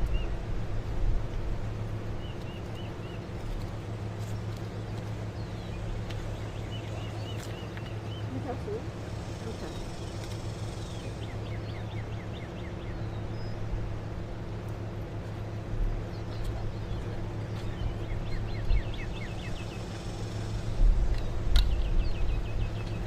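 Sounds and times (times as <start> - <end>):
low mechanical hum: 0.0 - 23.0
bird chirping: 4.2 - 13.8, 16.0 - 23.0.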